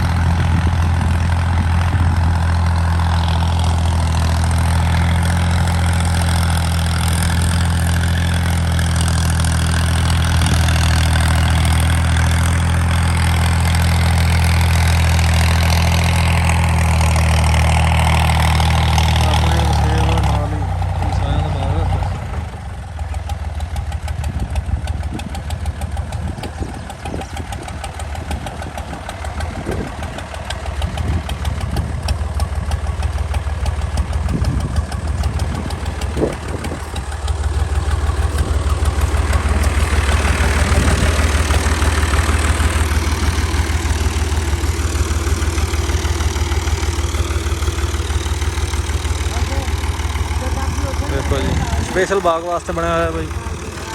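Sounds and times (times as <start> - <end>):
engine knocks: 0.0 - 53.9
tractor diesel engine running: 0.0 - 53.9.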